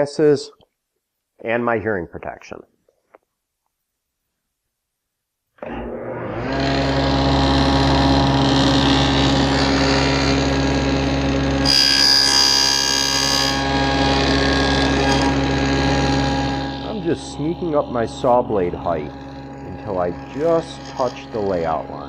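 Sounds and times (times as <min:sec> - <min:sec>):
saw cutting through wood: 0:05.6 - 0:22.0
table saw running: 0:05.6 - 0:22.0.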